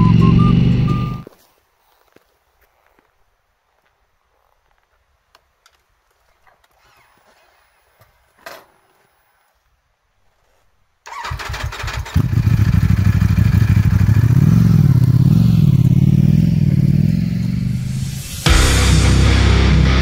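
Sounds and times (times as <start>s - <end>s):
motorcycle starter cranking: 11.1s - 14.1s
motorcycle engine fast idle: 11.1s - 17.6s.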